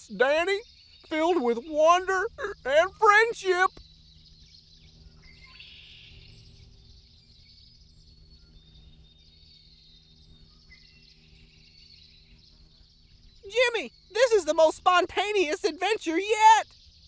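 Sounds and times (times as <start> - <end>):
birds chirping: 0.0 - 3.8, 13.5 - 16.6
insects chirping: 13.5 - 16.6.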